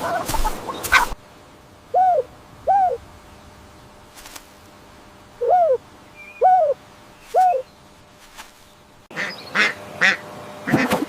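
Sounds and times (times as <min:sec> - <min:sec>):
bird hooting calls: 0:00.0 - 0:01.2, 0:01.9 - 0:03.1, 0:05.4 - 0:07.8.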